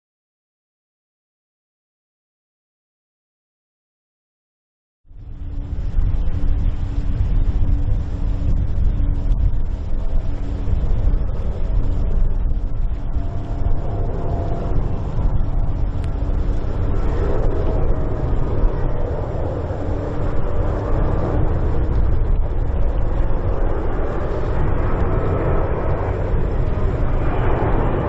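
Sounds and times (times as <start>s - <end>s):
jet airliner flying over: 5.1s - 28.0s.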